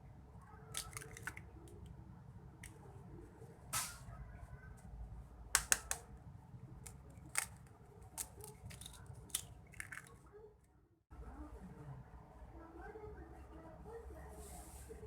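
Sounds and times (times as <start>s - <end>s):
kitchen clicks and snips: 0.7s - 1.9s, 3.8s - 4.1s, 5.6s - 6.1s, 6.8s - 10.2s.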